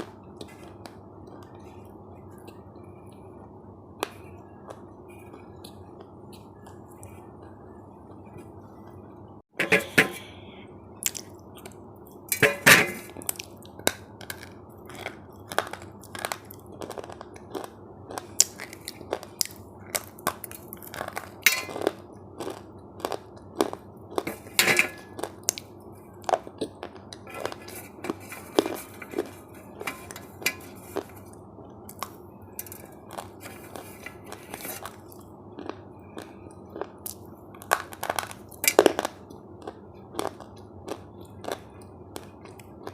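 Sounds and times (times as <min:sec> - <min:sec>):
crunchy food being chewed: 0:11.0 - 0:42.9
low hum: 0:20.6 - 0:42.9.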